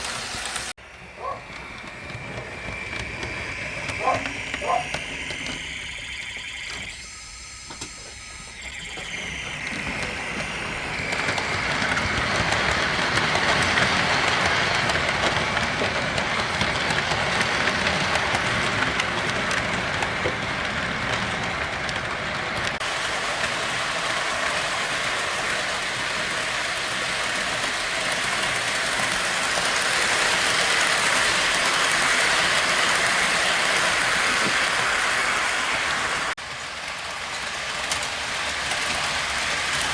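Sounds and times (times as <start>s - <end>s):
model train rolling rattle: 0.0s - 7.0s, 7.7s - 39.9s.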